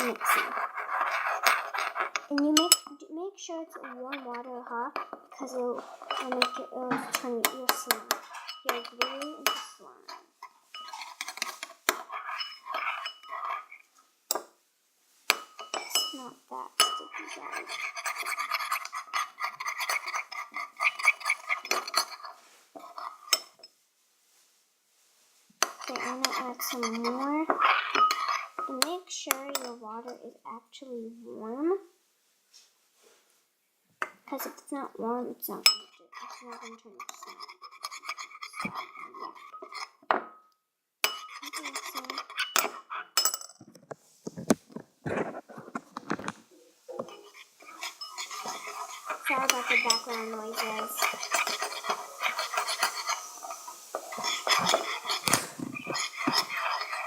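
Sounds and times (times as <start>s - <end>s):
spoon clinking against bowl: 0.0s - 3.0s, 4.1s - 14.5s, 15.3s - 16.2s, 16.8s - 23.6s, 25.6s - 28.9s, 35.7s - 43.5s, 47.0s - 57.0s
spoon stirring slime in a bowl: 0.0s - 14.5s, 15.2s - 23.8s, 25.5s - 30.6s, 34.0s - 57.0s.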